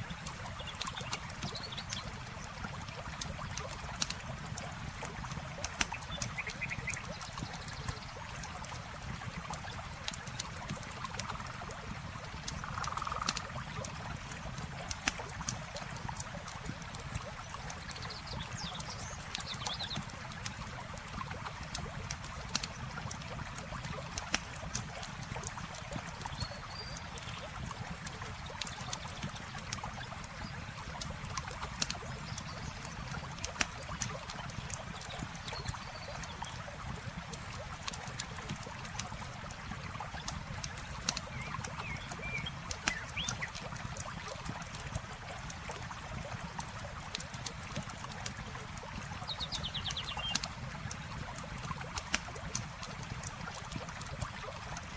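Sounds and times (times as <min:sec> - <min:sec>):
river water trickling: 0:00.0 - 0:54.9
campfire crackling: 0:29.5 - 0:49.2, 0:50.3 - 0:54.9.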